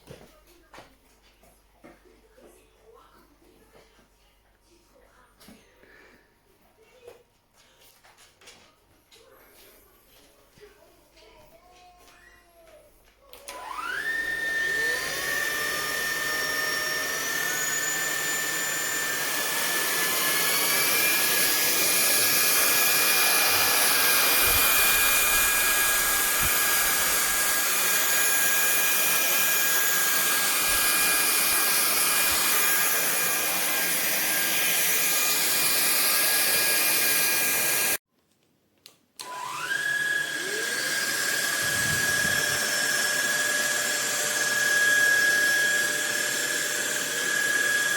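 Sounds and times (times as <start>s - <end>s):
vacuum motor whine: 13.4s - 38.0s, 39.2s - 47.9s.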